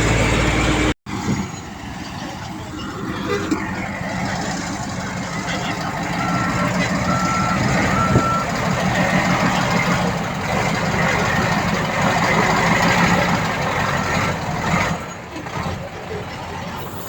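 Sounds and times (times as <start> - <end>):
heavy machinery diesel engine: 0.0 - 17.0
reversing beep: 6.0 - 8.6.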